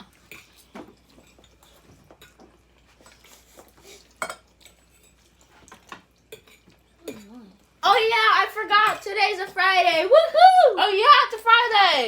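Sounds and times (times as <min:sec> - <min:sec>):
forks clinking on plates: 0:04.0 - 0:07.4.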